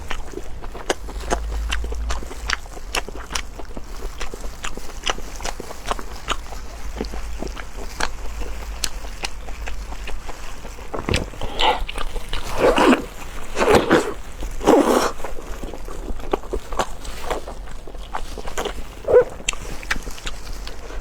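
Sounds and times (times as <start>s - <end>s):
person chewing with mouth clicks: 0.0s - 21.0s
slurping mouthfuls: 10.7s - 15.5s.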